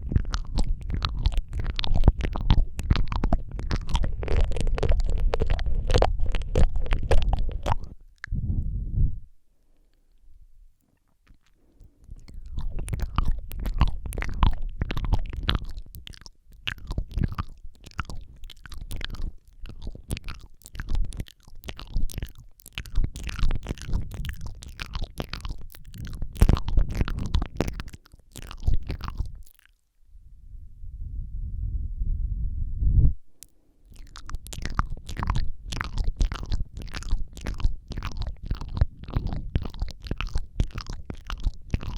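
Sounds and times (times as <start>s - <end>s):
wet mouth sounds: 0.0s - 8.7s, 9.7s - 29.8s, 33.4s - 41.9s
low rumble: 0.0s - 9.5s, 30.1s - 33.3s.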